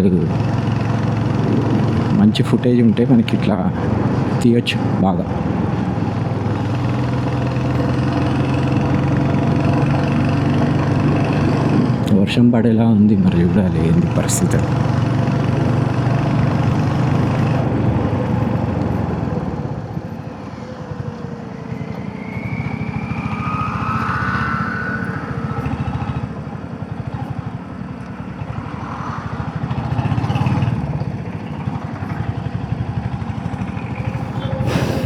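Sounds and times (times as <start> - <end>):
motorcycle engine running: 5.3 - 12.1, 13.4 - 23.0, 25.6 - 35.0.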